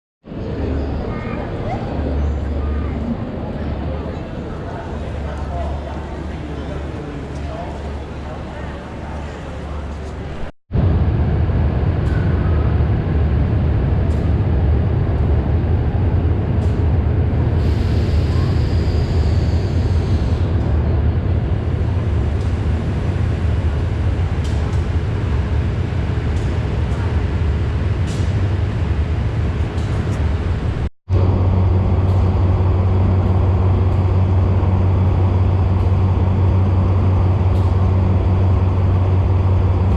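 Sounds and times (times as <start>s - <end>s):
steam train rumbling: 0.3s - 39.9s
steam hiss: 17.6s - 20.4s.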